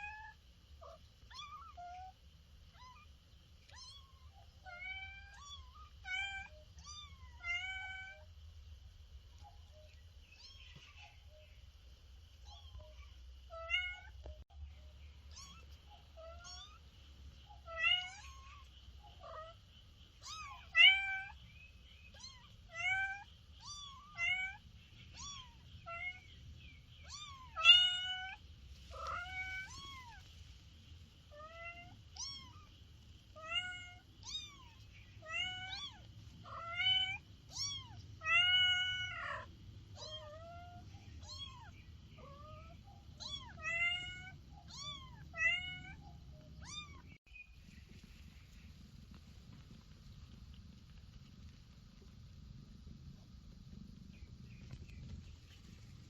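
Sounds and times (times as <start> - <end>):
kitten meowing: 15.3 - 16.8, 33.4 - 46.0, 46.6 - 47.1.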